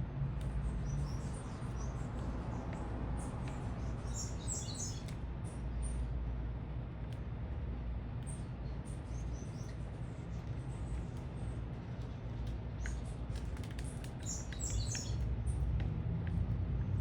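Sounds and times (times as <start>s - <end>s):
city traffic rumble: 0.0s - 17.0s
small birds chirping: 0.3s - 15.8s
small clicks: 12.0s - 16.5s.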